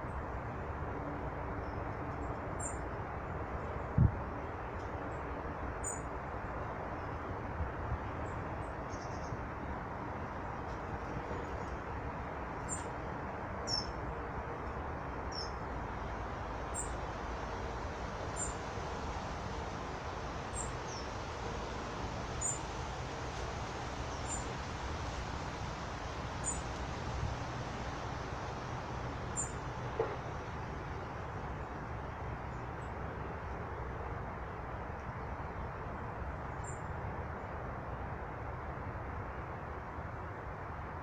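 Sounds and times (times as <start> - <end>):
steady rushing noise: 0.0 - 41.0
small birds chirping: 13.7 - 14.0, 15.3 - 15.6, 22.4 - 22.6, 26.4 - 26.7, 29.3 - 29.6.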